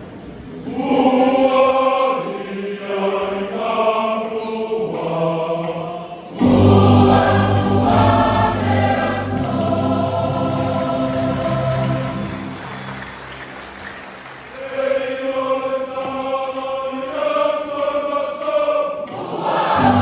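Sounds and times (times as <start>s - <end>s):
choir singing a hymn: 0.4s - 20.0s
deep bass: 6.4s - 12.3s.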